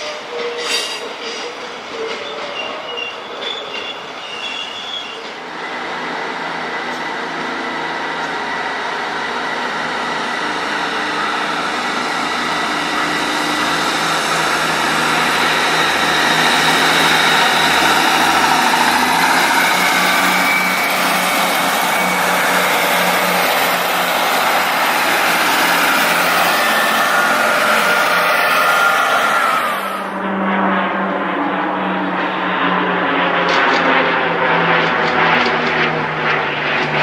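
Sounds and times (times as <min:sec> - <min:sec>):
train engine hum: 0:00.0 - 0:30.4.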